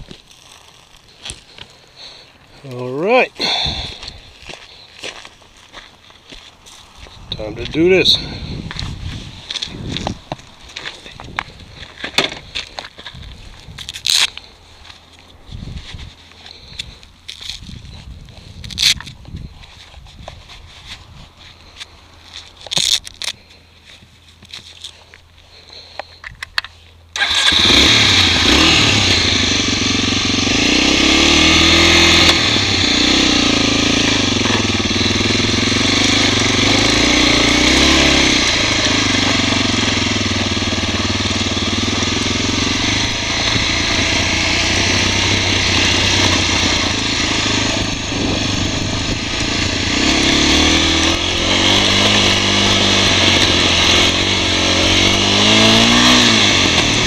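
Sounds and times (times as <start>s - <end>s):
wind noise on camera: 7.0s - 14.1s, 15.4s - 21.5s, 47.5s - 50.2s
motorcycle engine revving: 27.1s - 57.0s.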